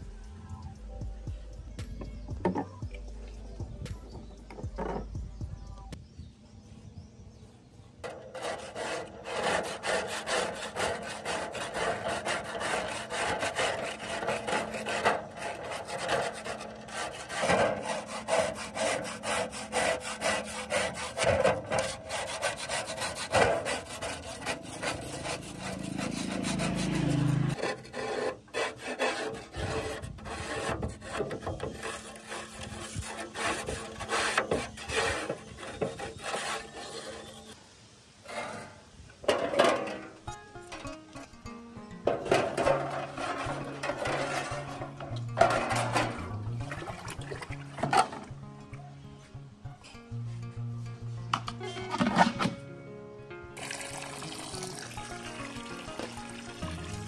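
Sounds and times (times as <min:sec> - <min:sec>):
abrasive scraping by hand: 0:07.8 - 0:37.6, 0:38.2 - 0:41.4, 0:42.0 - 0:52.6.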